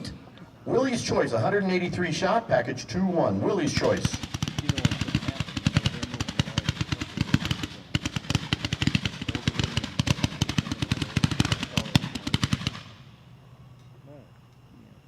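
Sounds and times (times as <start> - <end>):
fireworks crackling shots: 3.7 - 13.3.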